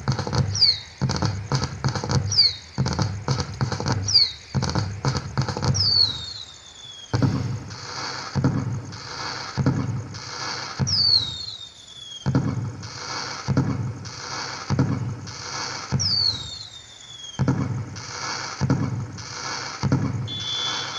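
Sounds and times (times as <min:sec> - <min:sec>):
crackling bangs: 0:00.0 - 0:20.9
firework falling whistle: 0:00.4 - 0:00.9, 0:05.7 - 0:13.7, 0:14.4 - 0:20.9.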